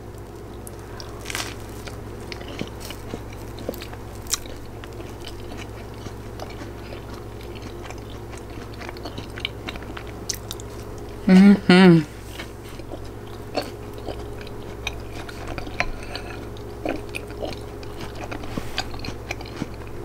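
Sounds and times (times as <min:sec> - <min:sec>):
person chewing food: 0:00.0 - 0:11.5, 0:12.1 - 0:20.0
steady low hum: 0:00.0 - 0:20.0
small crunches: 0:00.1 - 0:11.1.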